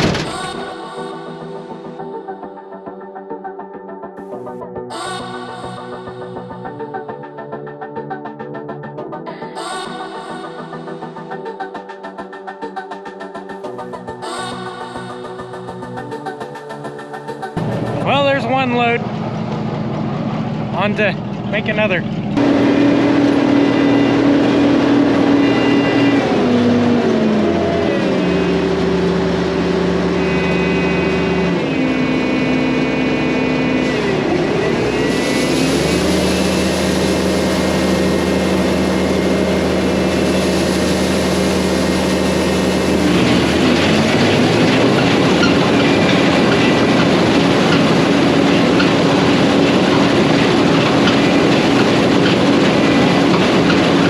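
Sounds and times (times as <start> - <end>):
rushing noise: 17.6 - 54.0
vehicle engine revving under load: 17.6 - 54.0.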